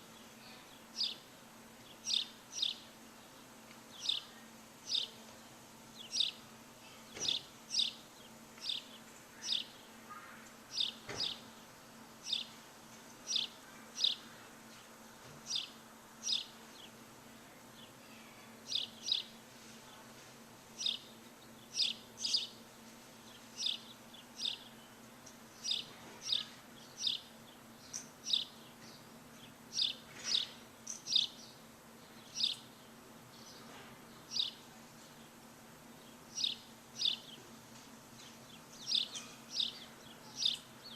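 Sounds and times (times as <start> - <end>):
bird chirping: 0.1 - 1.2, 1.8 - 5.2, 5.9 - 6.4, 7.2 - 11.5, 12.2 - 12.6, 13.3 - 14.3, 15.5 - 17.0, 18.7 - 19.4, 20.8 - 22.6, 23.2 - 25.0, 25.6 - 35.4, 36.0 - 37.5, 38.2 - 40.9.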